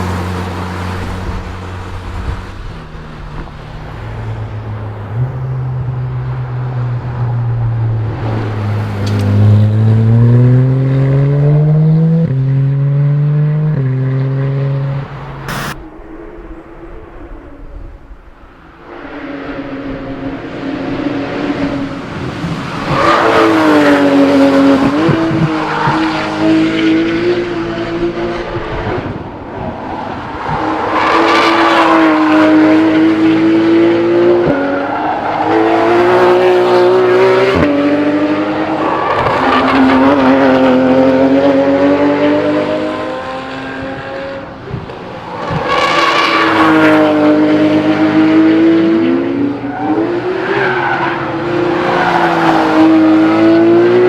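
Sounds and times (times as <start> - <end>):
sports car engine revving: 15.5 - 15.8.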